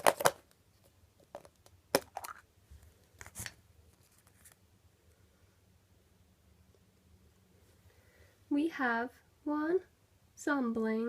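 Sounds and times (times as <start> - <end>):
packaging crinkling and ripping: 0.0 - 0.5.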